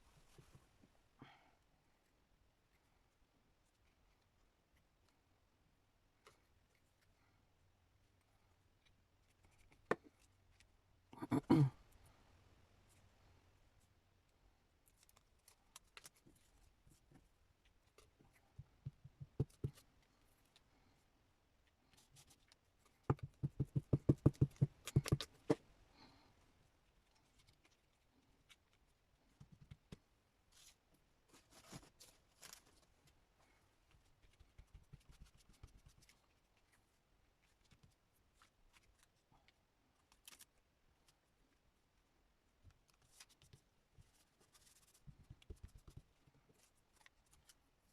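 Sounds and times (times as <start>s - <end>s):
paper rustling: 30.5s - 32.9s.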